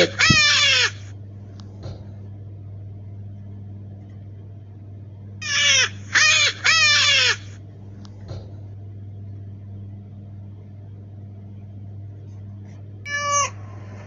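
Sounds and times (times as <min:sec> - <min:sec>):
rabbit squealing cries: 0:00.0 - 0:01.1, 0:05.4 - 0:07.6, 0:13.1 - 0:14.0
steady low hum: 0:00.0 - 0:14.0.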